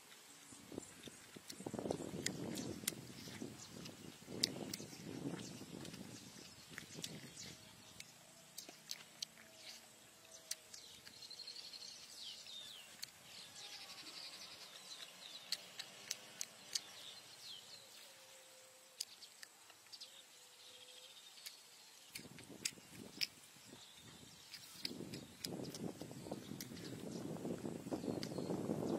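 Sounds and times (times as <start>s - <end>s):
birds chirping and twittering: 0.2s - 28.9s
eating clicks and smacks: 0.9s - 13.4s, 14.6s - 17.6s, 19.0s - 19.9s, 21.4s - 27.1s, 28.0s - 28.6s.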